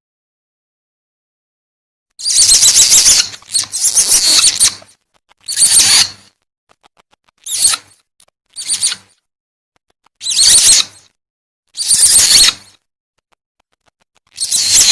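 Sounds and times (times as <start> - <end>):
high-pitched squealing cries: 2.2 - 6.3, 7.4 - 8.0, 8.6 - 9.2, 10.2 - 11.1, 11.8 - 12.8, 14.3 - 14.9.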